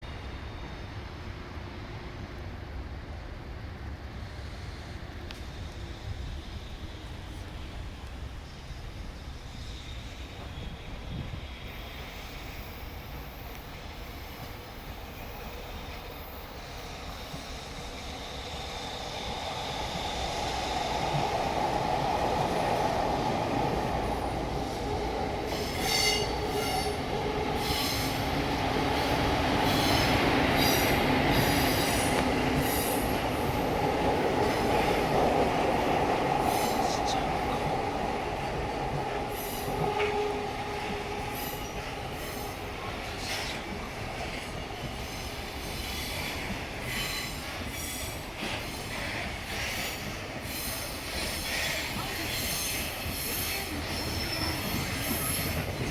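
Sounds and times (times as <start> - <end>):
train wheels rumbling on rail: 0.0 - 55.9
high wheel squeals: 50.5 - 55.8.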